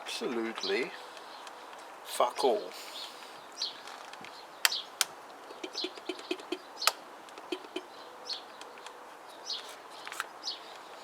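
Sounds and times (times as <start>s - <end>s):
small birds chirping: 0.0s - 11.0s
sharp clicks: 4.6s - 7.9s.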